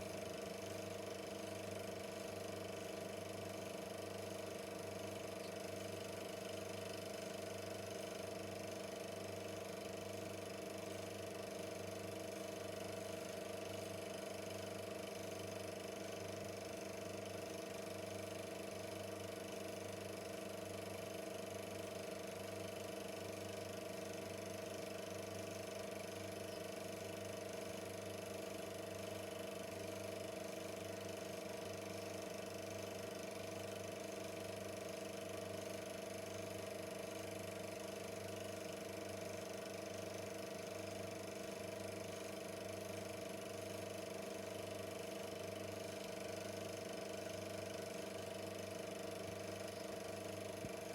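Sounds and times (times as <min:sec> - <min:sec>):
film projector motor hum: 0:00.0 - 0:50.9.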